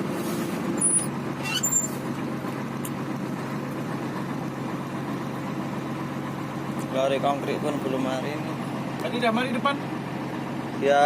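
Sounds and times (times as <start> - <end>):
truck diesel engine running: 0.0 - 11.0
brief high squeaks: 0.8 - 2.0.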